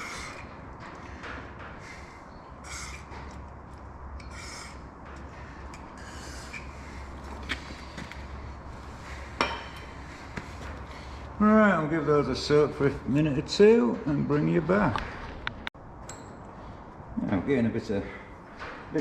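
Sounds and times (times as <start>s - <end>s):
metal engine parts scraping: 0.0s - 11.2s.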